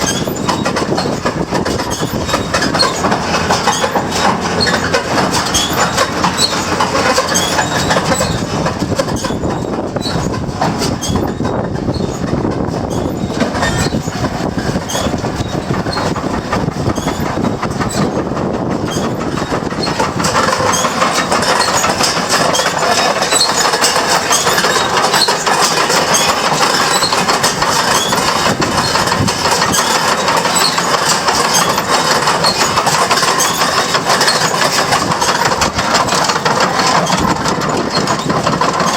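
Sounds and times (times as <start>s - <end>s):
round baler clattering: 0.0s - 38.9s.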